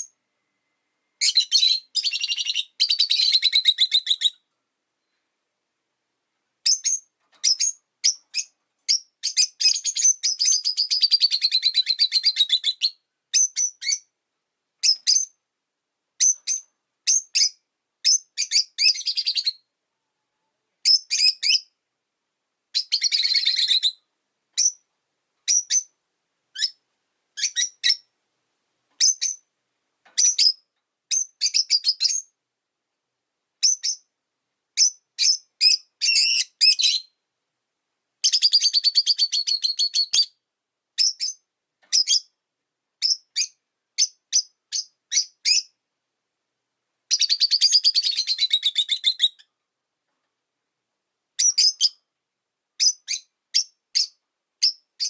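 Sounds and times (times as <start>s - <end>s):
lovebirds chirping: 0.0s - 0.2s, 1.2s - 5.4s, 6.6s - 14.1s, 14.8s - 15.4s, 16.2s - 19.7s, 20.8s - 21.8s, 22.7s - 28.1s, 28.9s - 32.4s, 33.6s - 34.1s, 34.8s - 37.2s, 38.2s - 40.4s, 41.0s - 42.4s, 43.0s - 45.8s, 47.1s - 49.6s, 51.4s - 52.1s, 52.8s - 55.0s.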